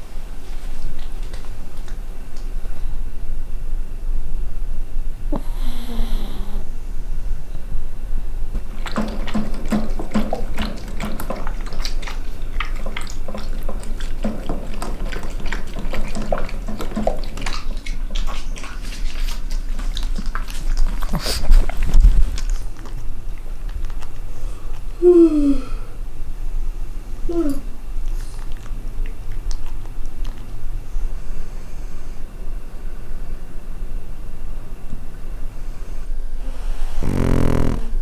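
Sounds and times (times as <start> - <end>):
dog smacking mouth: 0.5 - 2.6, 8.6 - 25.1, 27.3 - 30.8.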